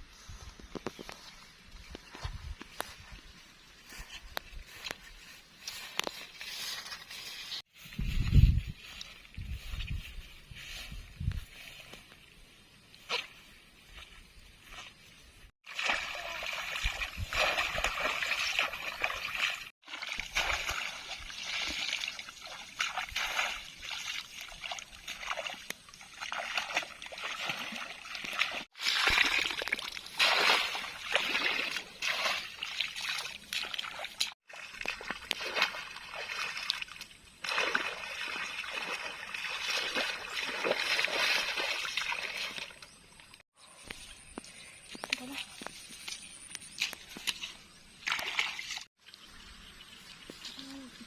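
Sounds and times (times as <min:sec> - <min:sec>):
water splashing and sloshing: 0:12.9 - 0:51.0.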